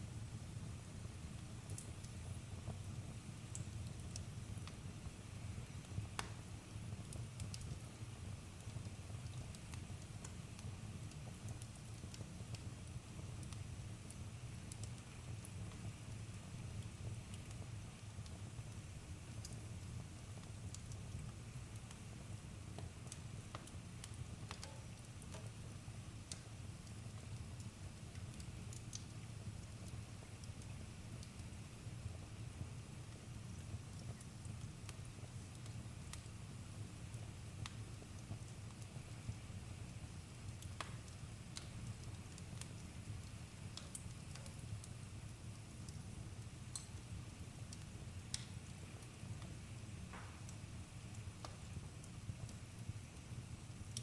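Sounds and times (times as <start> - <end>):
low rumble of burning fire: 0.0 - 54.0
campfire crackling and popping: 0.1 - 54.0.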